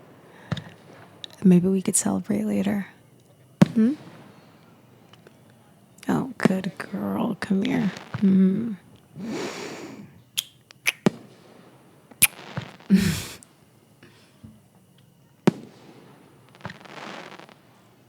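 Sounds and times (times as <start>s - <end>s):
soft breaths: 0.0s - 10.4s, 12.3s - 18.0s
firework pops and cracks: 0.0s - 18.0s
woman humming: 3.7s - 4.0s, 6.8s - 10.1s, 12.9s - 13.4s.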